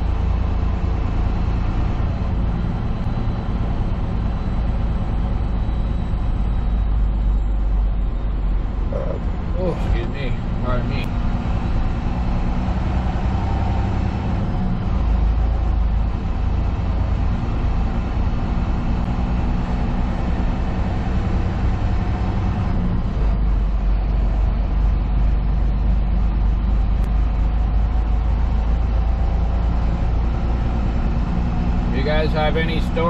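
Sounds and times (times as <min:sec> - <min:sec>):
diesel truck engine droning: 0:00.0 - 0:33.0
road noise: 0:00.0 - 0:33.0.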